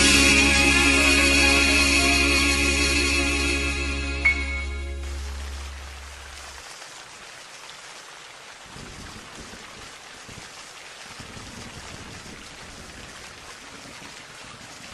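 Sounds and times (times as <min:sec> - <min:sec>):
low rumble: 0:00.0 - 0:06.5
steady rain hiss: 0:00.0 - 0:14.9.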